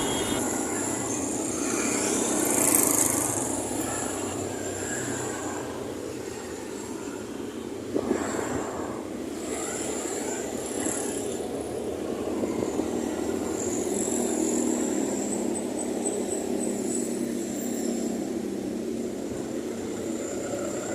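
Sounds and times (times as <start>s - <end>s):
faint wavering high whine: 0.0s - 1.3s
engine running steadily: 0.0s - 20.9s.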